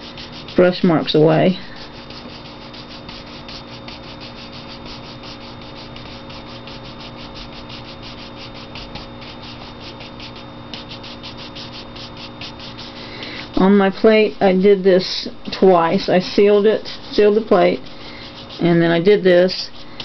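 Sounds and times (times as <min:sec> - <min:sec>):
brush rasping on paper: 0:00.0 - 0:20.0.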